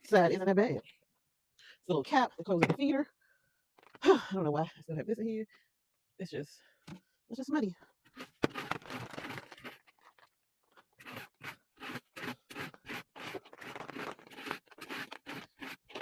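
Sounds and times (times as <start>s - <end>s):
scraping and crunching bedding: 8.1s - 11.4s, 12.0s - 16.0s.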